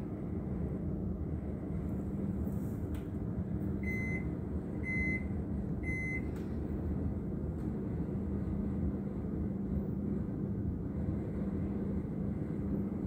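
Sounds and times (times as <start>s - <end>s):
low engine rumble: 0.0s - 13.0s
reversing alarm beeping: 3.8s - 6.3s.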